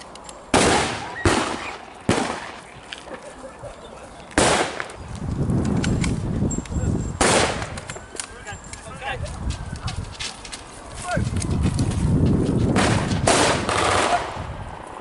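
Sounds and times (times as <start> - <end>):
gunshots with echo: 12.8 - 14.4.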